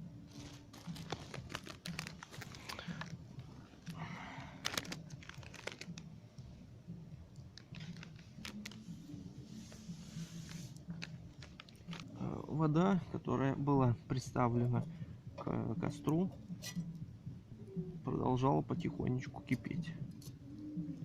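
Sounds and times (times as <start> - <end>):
sharp clicks and rustling: 0.3 - 4.0
plastic packet tearing and crinkling: 0.3 - 6.1, 7.6 - 8.9, 10.4 - 12.2.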